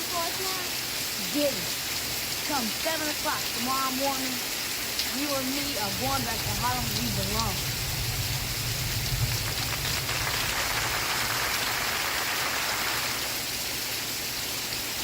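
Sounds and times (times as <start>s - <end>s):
steady rain falling: 0.0s - 15.0s
low rumble: 6.4s - 12.3s.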